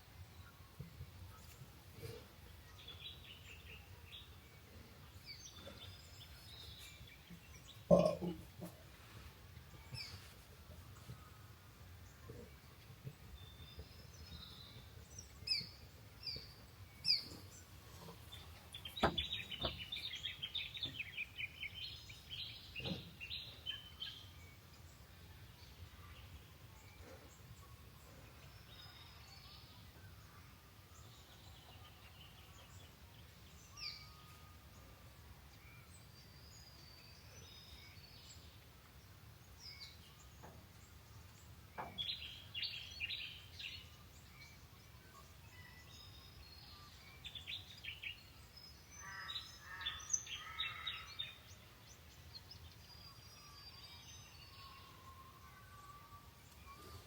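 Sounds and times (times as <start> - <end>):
birds chirping: 1.3 - 8.8, 11.0 - 30.3.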